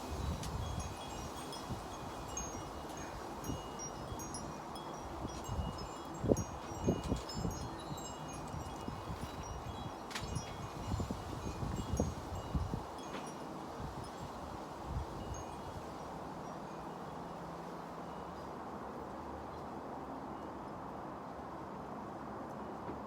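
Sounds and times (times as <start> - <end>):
low wind rumble on microphone: 0.0 - 16.1
wind chimes ringing: 0.1 - 17.4.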